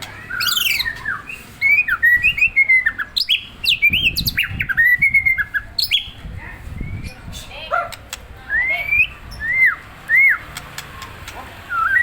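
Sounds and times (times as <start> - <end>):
bird singing whistled notes: 0.1 - 7.2, 8.5 - 10.6, 11.7 - 12.0.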